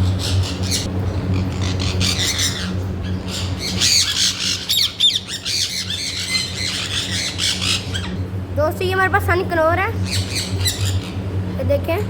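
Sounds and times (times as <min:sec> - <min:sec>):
parrots squawking and chattering: 0:00.0 - 0:08.3, 0:10.0 - 0:11.4
steady low hum: 0:00.0 - 0:12.0.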